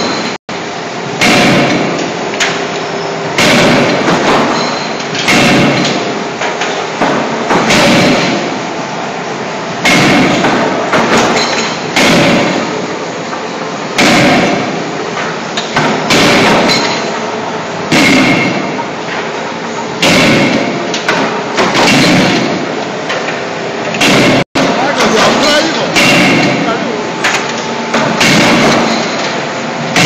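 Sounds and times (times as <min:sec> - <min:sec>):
hydraulic and shop noise: 0:00.0 - 0:30.0
forging hammer heavy blows: 0:01.2 - 0:02.0, 0:03.4 - 0:06.1, 0:07.0 - 0:08.6, 0:09.8 - 0:12.9, 0:14.0 - 0:14.8, 0:15.7 - 0:17.1, 0:17.9 - 0:18.8, 0:20.0 - 0:22.7, 0:23.9 - 0:30.0.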